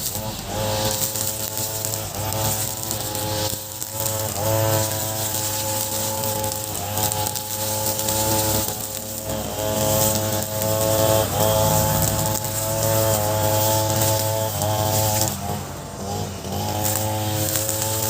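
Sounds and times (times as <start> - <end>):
brush cutter revving: 0.0 - 18.0.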